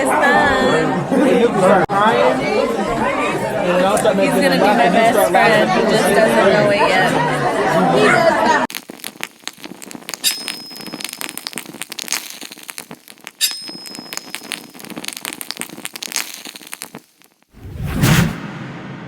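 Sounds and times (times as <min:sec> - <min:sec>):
irregular crackling and clicking: 0:08.7 - 0:17.5
short loud low burst: 0:17.6 - 0:19.0.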